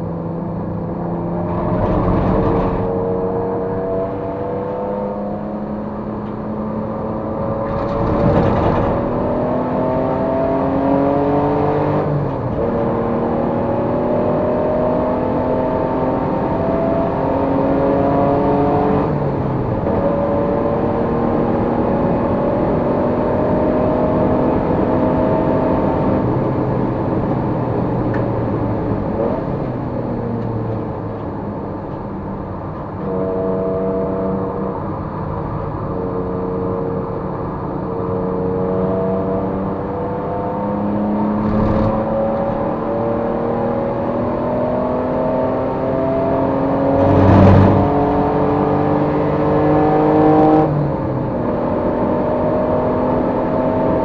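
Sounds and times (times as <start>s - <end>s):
race car engine revving: 0.7s - 5.5s, 32.9s - 54.0s.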